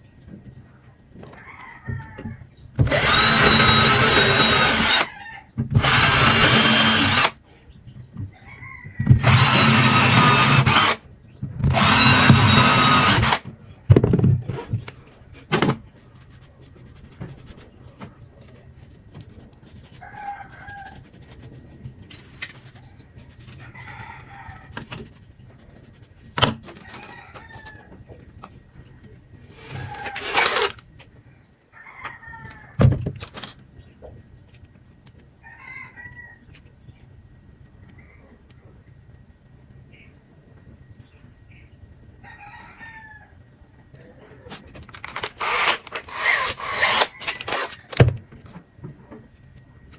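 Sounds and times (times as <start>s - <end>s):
electric drill running: 2.8s - 5.1s, 5.8s - 7.4s, 9.1s - 11.0s, 11.6s - 13.4s, 29.6s - 30.8s, 45.0s - 48.1s
knocks and clicks of parts: 9.0s - 15.9s, 26.4s - 27.1s, 32.8s - 33.6s, 44.6s - 48.7s.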